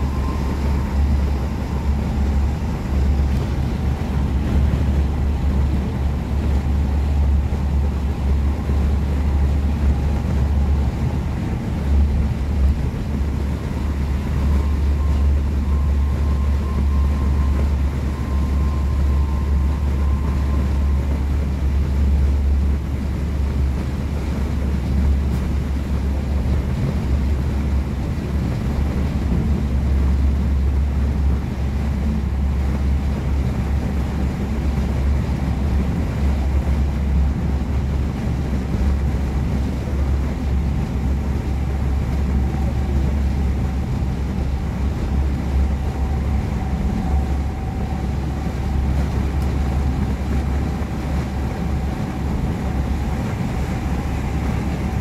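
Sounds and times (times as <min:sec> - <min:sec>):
train rumbling on rails: 0:00.0 - 0:55.0.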